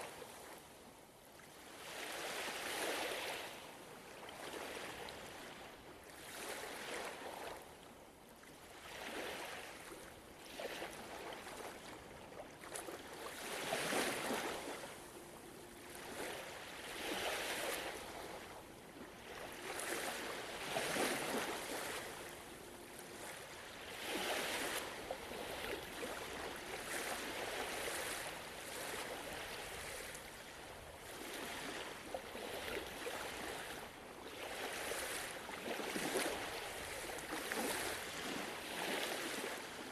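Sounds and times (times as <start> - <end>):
ocean waves washing ashore: 8.7 - 39.9.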